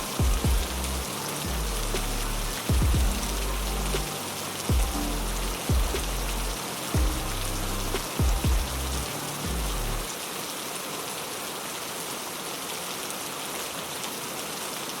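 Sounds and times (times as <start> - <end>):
deep bass notes with downward sweep: 0.0 - 10.1
heavy rain: 0.0 - 15.0.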